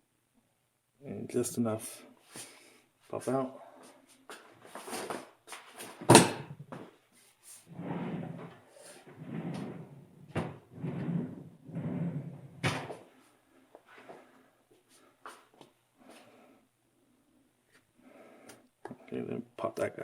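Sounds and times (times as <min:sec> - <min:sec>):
sharp clunk: 0:06.1 - 0:06.6.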